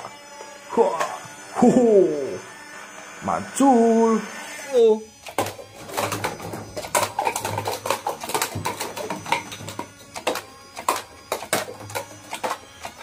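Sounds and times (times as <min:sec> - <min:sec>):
toy guns clicking and clattering: 0:05.2 - 0:13.0.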